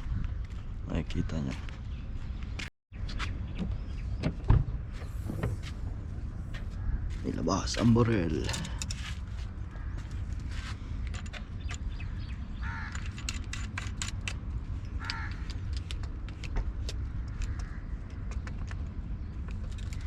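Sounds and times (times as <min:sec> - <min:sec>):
steady low rumble: 0:00.0 - 0:20.0
fishing gear clicking and rattling: 0:08.3 - 0:09.4, 0:11.0 - 0:12.0, 0:12.8 - 0:20.0.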